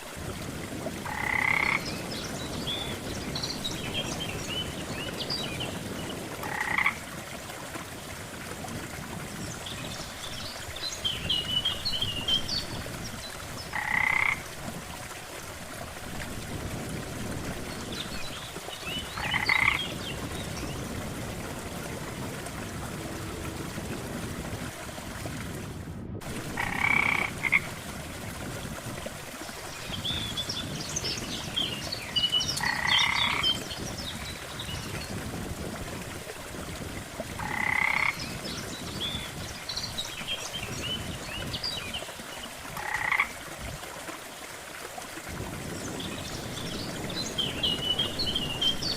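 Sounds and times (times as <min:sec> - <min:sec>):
frogs croaking: 0:01.0 - 0:02.1, 0:06.4 - 0:07.2, 0:13.6 - 0:14.6, 0:18.5 - 0:20.3, 0:26.4 - 0:27.8, 0:32.5 - 0:33.8, 0:37.4 - 0:38.5, 0:42.8 - 0:43.4.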